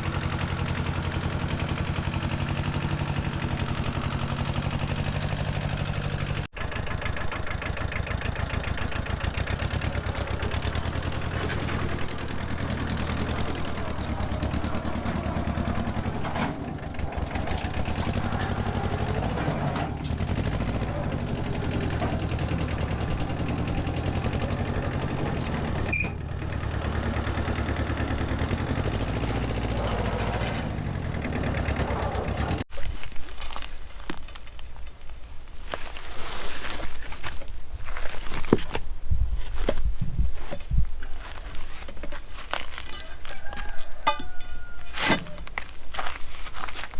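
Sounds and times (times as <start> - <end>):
engine running: 0.0 - 32.8.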